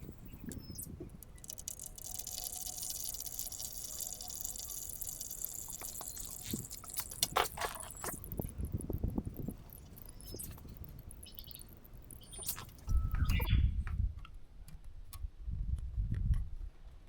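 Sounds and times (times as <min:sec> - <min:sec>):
oil pouring into container: 0:01.2 - 0:10.9.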